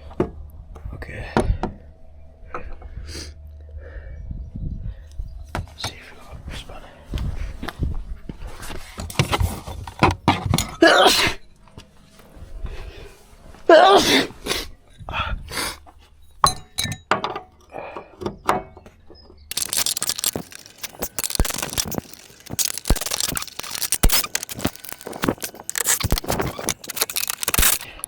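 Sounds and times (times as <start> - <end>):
rapid clicking and rattling: 19.5 - 28.0.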